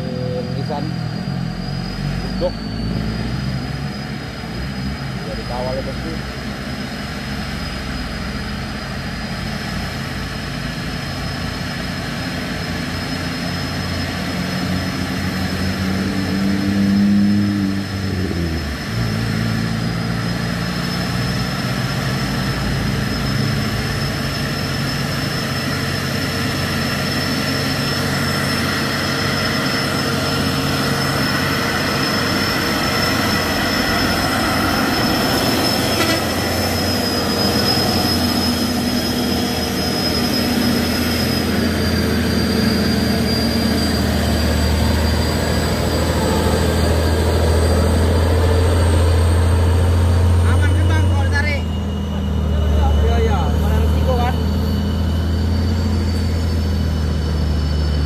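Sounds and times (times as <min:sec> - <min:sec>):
diesel truck engine labouring: 0:00.0 - 0:58.0
thin high whine: 0:00.0 - 0:58.0.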